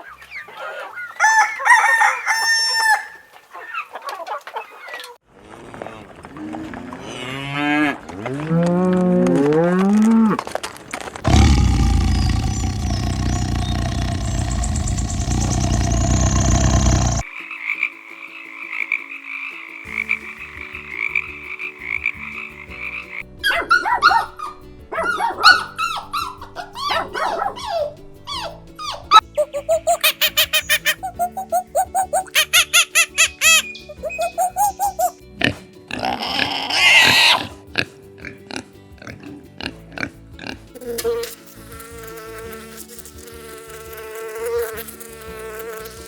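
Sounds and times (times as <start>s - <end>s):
flying insect buzzing: 11.2s - 17.3s, 40.8s - 46.0s
frog chorus: 11.3s - 23.2s
dogs barking and yelping: 23.4s - 35.2s.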